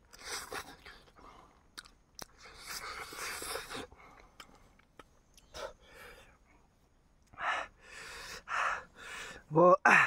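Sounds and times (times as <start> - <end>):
chewing wet mouth noises: 0.1 - 5.6
person breathing: 5.4 - 6.7, 7.3 - 10.0.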